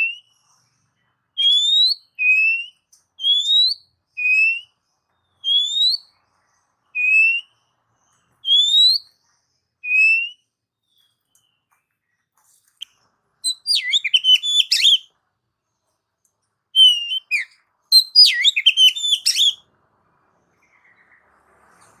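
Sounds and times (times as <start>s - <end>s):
songbird whistled notes: 1.4s - 6.2s, 6.9s - 9.2s, 9.8s - 11.7s, 13.4s - 15.1s, 16.8s - 19.6s.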